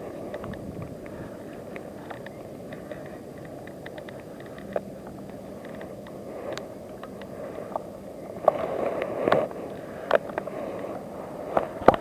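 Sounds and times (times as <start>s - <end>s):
bicycle rolling rumble: 0.0s - 12.0s
bicycle clicks and knocks: 0.3s - 6.2s.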